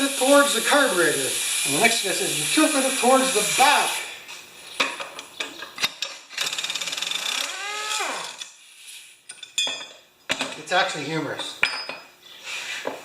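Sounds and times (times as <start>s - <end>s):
hand ratchet clicking: 6.3s - 8.6s.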